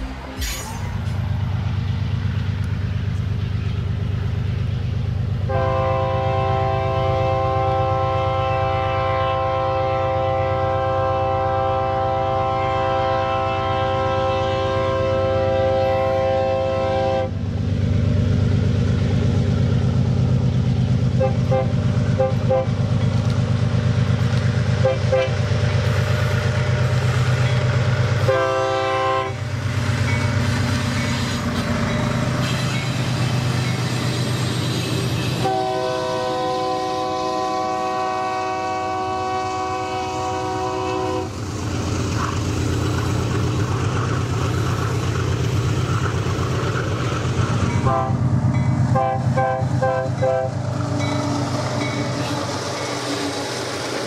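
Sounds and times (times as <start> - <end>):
diesel locomotive engine rumble: 0.0 - 54.0
locomotive horn blasts: 5.5 - 17.3, 21.2 - 22.8, 24.8 - 25.4, 28.2 - 29.4, 35.2 - 41.3, 47.8 - 48.2, 48.9 - 51.2.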